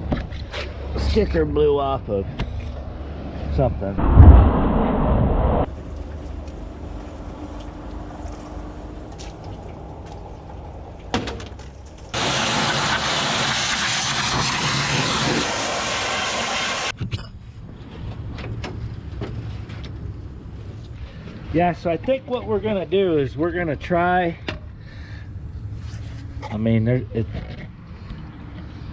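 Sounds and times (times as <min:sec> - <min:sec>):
low engine hum: 0:00.7 - 0:12.1
pressure washer spraying: 0:12.2 - 0:16.9.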